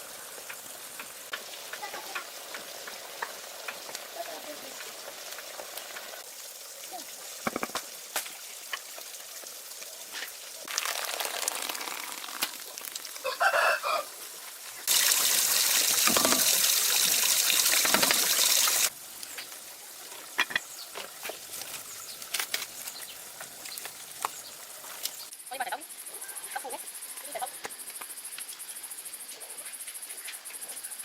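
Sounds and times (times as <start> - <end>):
light hiss: 0.0 - 25.5
chicken calling: 13.2 - 14.2.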